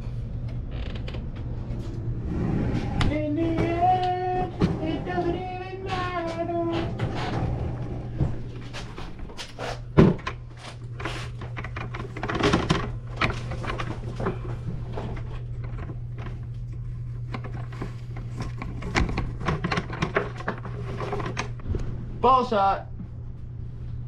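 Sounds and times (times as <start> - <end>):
steady low hum: 0.0 - 24.0
knocks and clatter: 2.8 - 16.5, 17.3 - 21.8.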